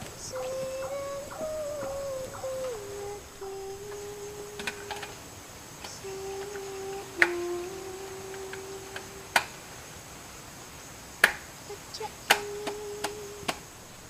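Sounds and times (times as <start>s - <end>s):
person humming low note: 0.0s - 5.2s, 5.9s - 9.4s.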